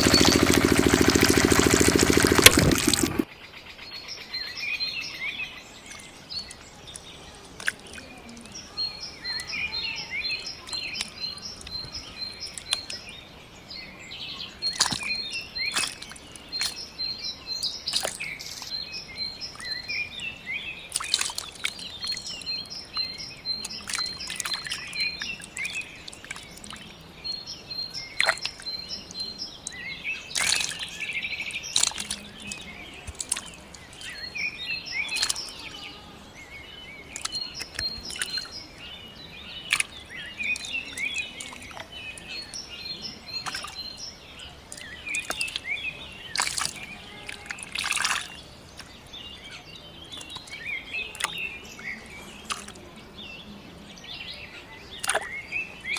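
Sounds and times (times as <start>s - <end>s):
small birds twittering: 0.0s - 55.9s.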